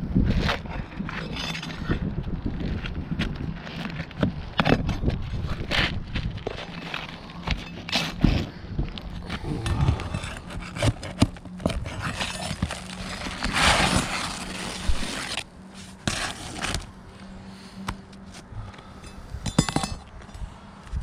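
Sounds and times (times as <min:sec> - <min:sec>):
tools scraping shingles: 0:00.4 - 0:02.0, 0:03.6 - 0:08.6, 0:09.2 - 0:17.0, 0:17.8 - 0:20.3.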